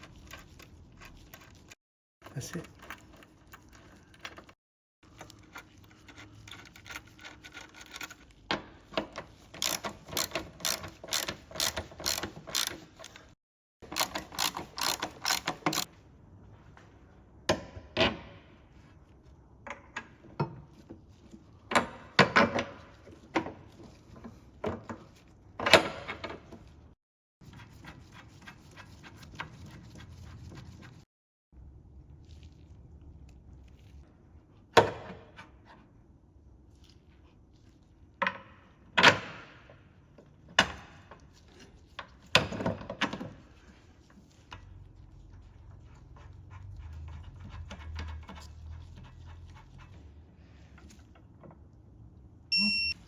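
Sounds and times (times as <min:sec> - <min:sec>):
ratchet spanner clicking: 0:09.6 - 0:13.2, 0:13.9 - 0:15.9.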